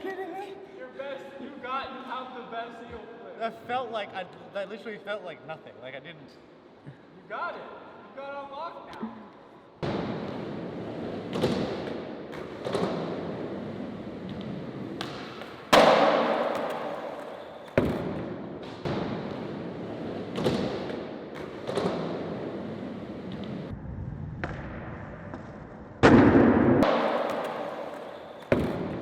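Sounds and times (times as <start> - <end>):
skateboard thudding on concrete: 9.8 - 23.6, 24.4 - 29.0.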